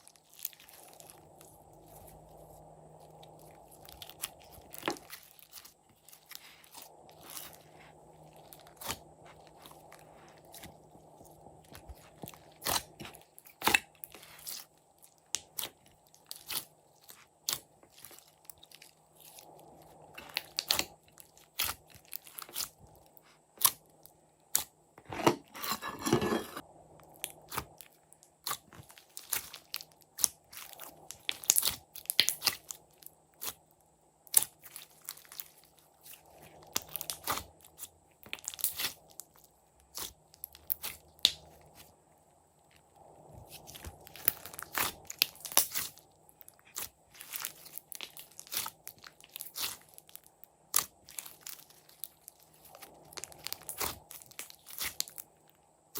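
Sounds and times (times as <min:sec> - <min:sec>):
crunching squish of slime: 0:00.0 - 0:55.9
slime clicks and crunches: 0:27.1 - 0:33.6, 0:43.5 - 0:55.2.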